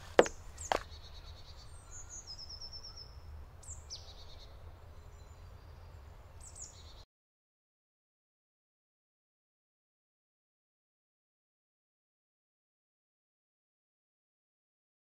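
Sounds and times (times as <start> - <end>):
sharp knocks: 0.0 - 0.8
birds chirping: 0.0 - 4.5.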